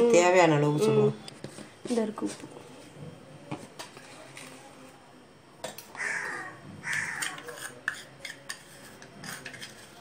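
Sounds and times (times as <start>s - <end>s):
bird cawing harshly: 6.0s - 7.3s.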